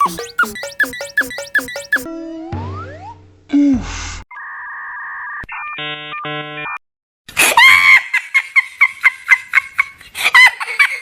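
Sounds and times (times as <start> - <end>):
pulsing electronic beep: 0.0 - 2.1
two-tone electronic buzz: 0.0 - 2.1.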